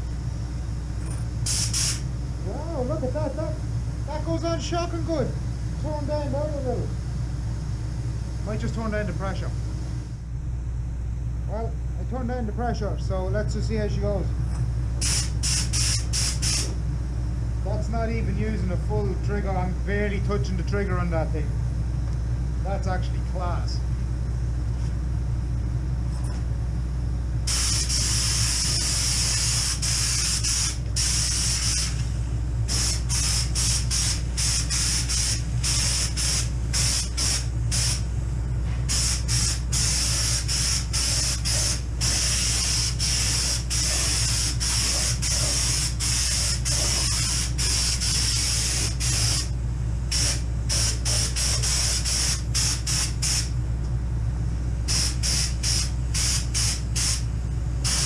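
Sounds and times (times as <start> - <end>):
steady low hum: 0.0 - 58.0
spray gun hissing: 1.4 - 2.1, 15.0 - 16.8, 27.5 - 32.1, 32.7 - 38.1, 38.9 - 49.5, 50.1 - 53.5, 54.9 - 57.2.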